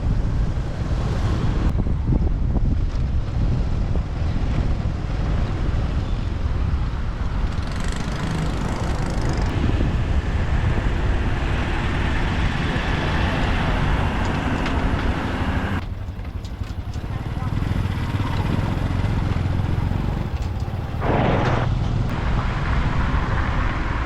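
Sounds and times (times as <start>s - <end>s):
road and traffic noise: 0.0s - 24.0s
wind on microphone: 0.0s - 24.0s.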